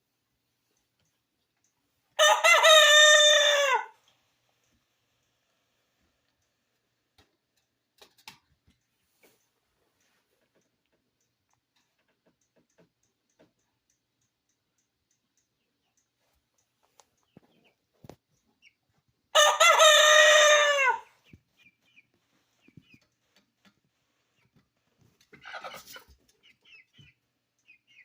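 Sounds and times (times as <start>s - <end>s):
rooster crowing: 2.2s - 4.0s, 19.4s - 21.1s
faint ticks and taps: 6.3s - 18.4s.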